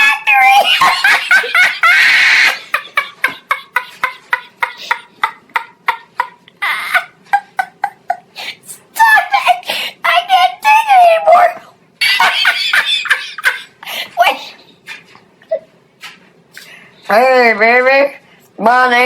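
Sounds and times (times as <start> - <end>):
loud high-pitched voice: 0.0 - 0.8, 9.0 - 11.6.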